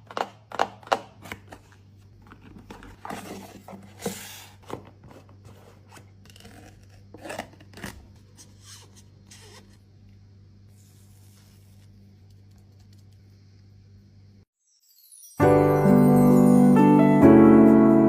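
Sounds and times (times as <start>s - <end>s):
faint steady hum: 0.0s - 14.5s.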